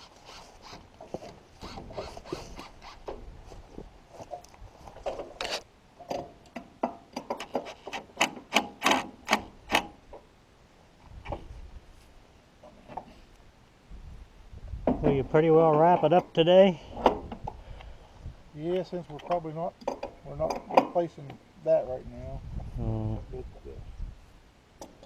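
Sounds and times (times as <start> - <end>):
hand tool clicks and knocks on metal frame: 6.0 - 10.0, 18.7 - 21.4.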